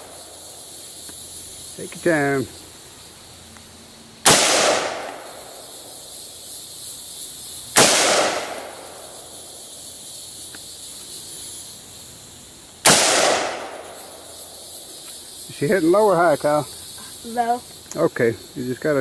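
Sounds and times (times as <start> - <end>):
rifle shots with echo: 4.2 - 5.5, 7.8 - 9.0, 12.8 - 13.9.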